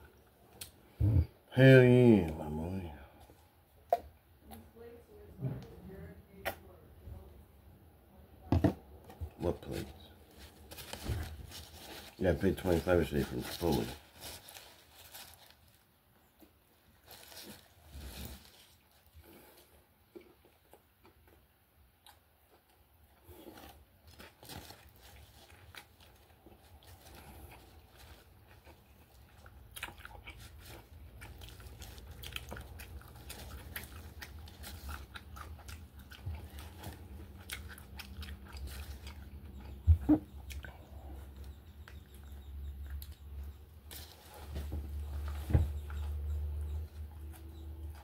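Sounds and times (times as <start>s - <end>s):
aluminium foil crinkling: 9.7s - 15.9s, 16.9s - 19.2s, 23.6s - 29.5s, 30.2s - 37.0s
person chewing with wet smacks: 20.0s - 44.0s.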